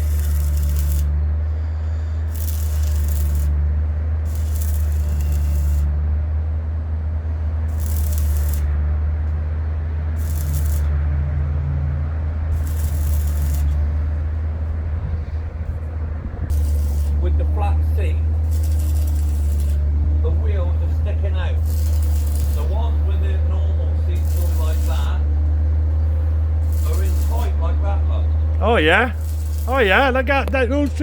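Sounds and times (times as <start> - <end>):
arc welding hissing and crackling: 0.0 - 1.1, 2.3 - 3.6, 4.3 - 5.9, 7.7 - 8.7, 10.2 - 10.9, 12.6 - 13.8, 16.5 - 17.2, 18.5 - 19.8, 21.6 - 22.8, 24.2 - 25.1, 26.6 - 27.6, 29.0 - 29.7.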